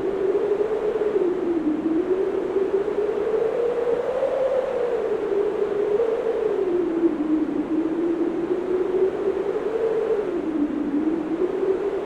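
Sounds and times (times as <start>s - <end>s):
blizzard wind howling: 0.0s - 12.0s.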